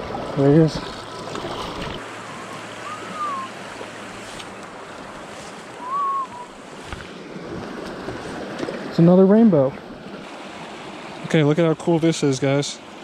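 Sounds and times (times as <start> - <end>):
creek water rushing: 0.0 - 13.0
whistle-like notes: 2.3 - 3.6, 5.8 - 6.6.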